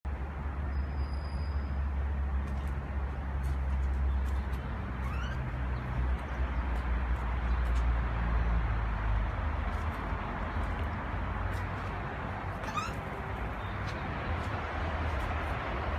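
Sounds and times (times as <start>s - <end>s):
traffic rumble: 0.1s - 15.9s
bird rising call: 5.0s - 5.4s, 12.6s - 13.0s.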